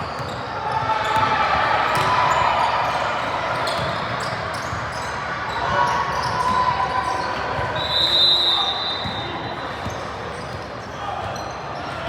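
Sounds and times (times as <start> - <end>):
basketball bouncing on court: 0.0 - 2.4, 3.6 - 5.1
hubbub of voices: 0.0 - 12.0.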